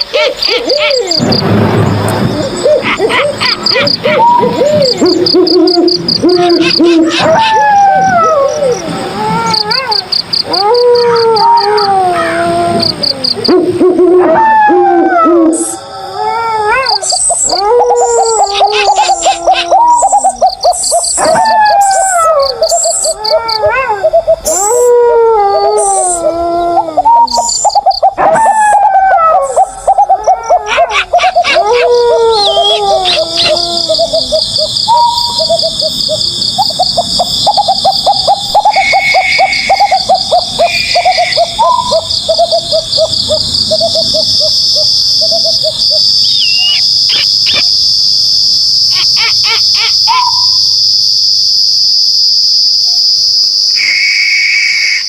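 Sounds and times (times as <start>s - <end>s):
crickets chirping: 0.0s - 55.0s
owl calls: 2.6s - 12.5s, 16.8s - 24.9s, 25.7s - 47.7s, 48.9s - 50.6s.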